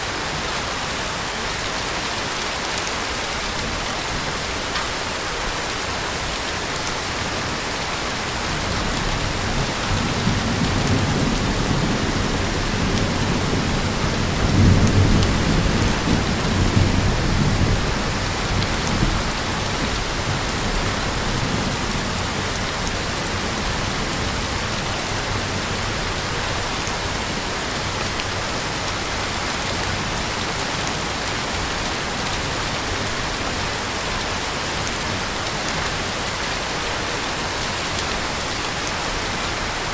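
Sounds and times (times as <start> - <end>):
heavy rain falling: 0.0 - 39.9
rolling thunder rumble: 8.4 - 22.7.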